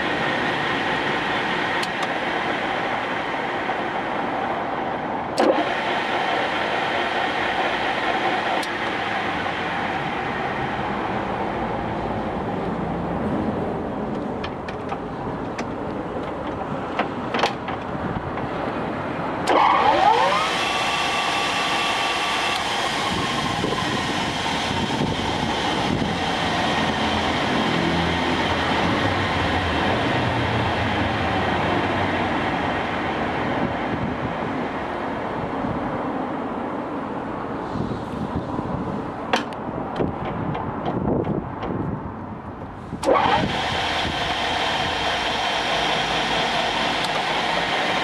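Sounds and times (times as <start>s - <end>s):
lathe spindle gear whine: 0.0s - 12.6s, 18.3s - 35.5s, 43.0s - 48.0s
lathe running hum: 0.0s - 13.4s, 18.3s - 35.5s, 43.0s - 48.0s.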